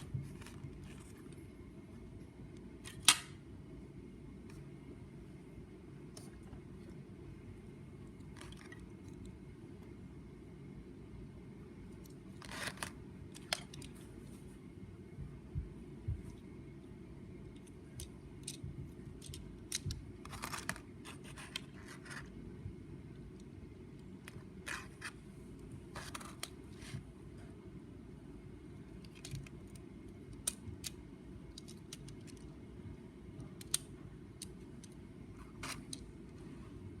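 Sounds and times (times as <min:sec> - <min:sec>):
steady low hum: 0:00.0 - 0:37.0
plastic parts clicking and scraping: 0:12.0 - 0:14.0, 0:17.5 - 0:22.3, 0:25.9 - 0:27.0, 0:28.9 - 0:32.6, 0:33.4 - 0:36.1.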